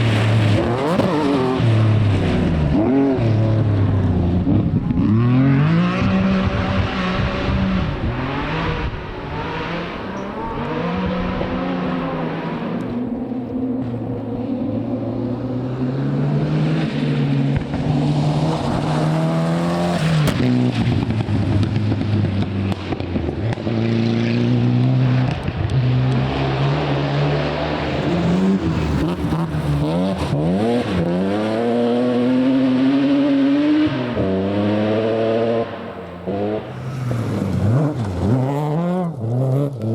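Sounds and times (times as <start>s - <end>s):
rally car engine accelerating: 0.0s - 39.9s.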